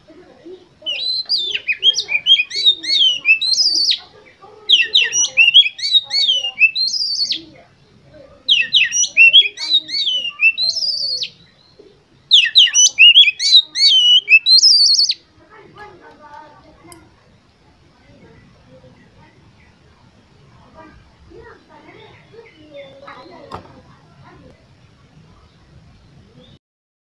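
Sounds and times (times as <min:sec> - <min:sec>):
bird singing whistles and trills: 0:00.9 - 0:04.1, 0:04.7 - 0:07.5, 0:08.5 - 0:15.2.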